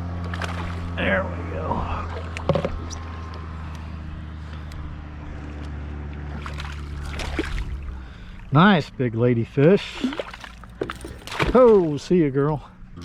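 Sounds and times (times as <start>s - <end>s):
knocks and water splashes: 0.0s - 1.0s, 2.0s - 3.0s, 6.2s - 8.5s, 9.8s - 12.2s
low motor hum: 0.0s - 13.0s.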